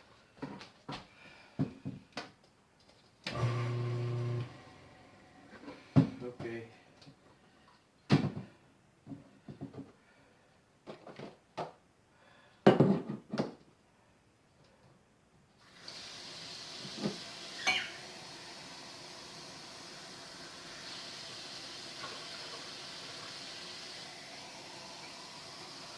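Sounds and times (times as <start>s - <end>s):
water heating hiss: 15.6s - 25.9s.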